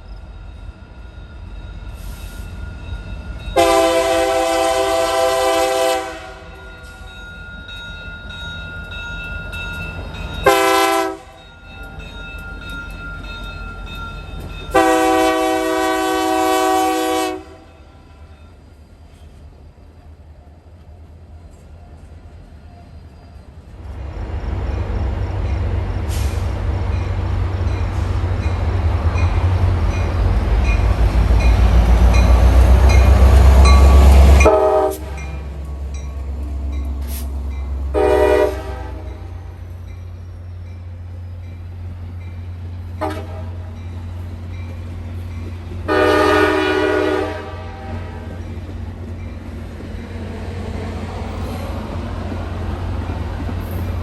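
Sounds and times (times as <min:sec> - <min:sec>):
train rumbling past: 0:00.0 - 0:54.0
train horn blasts: 0:03.6 - 0:06.6, 0:10.4 - 0:11.4, 0:14.7 - 0:18.2, 0:32.2 - 0:35.4, 0:37.9 - 0:39.6, 0:43.0 - 0:43.8, 0:45.8 - 0:48.4.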